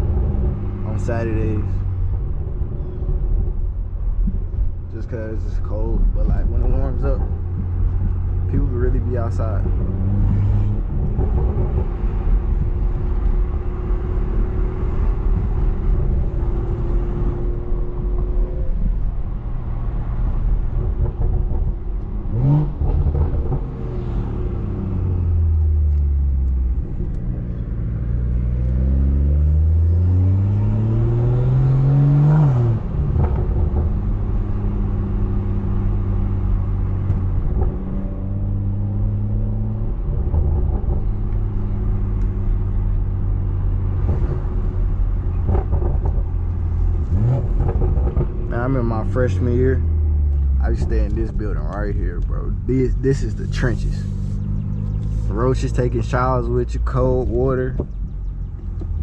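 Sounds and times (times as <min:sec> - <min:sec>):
car engine revving from inside: 0:08.0 - 0:18.8, 0:22.3 - 0:42.4.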